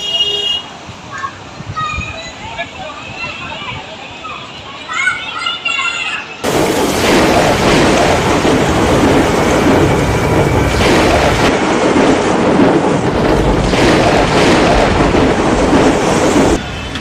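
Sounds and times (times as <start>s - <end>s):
wind: 0.0s - 17.0s
driving rain: 6.4s - 17.0s.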